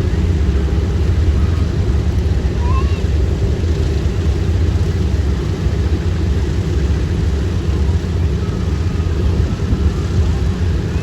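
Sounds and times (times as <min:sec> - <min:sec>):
radial aircraft engines droning: 0:00.0 - 0:11.0.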